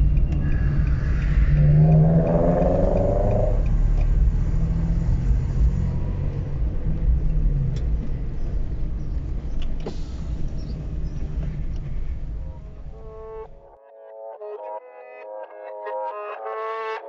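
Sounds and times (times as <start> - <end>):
faint clicks: 0.0 - 5.8
car exhaust rumble: 0.0 - 13.2.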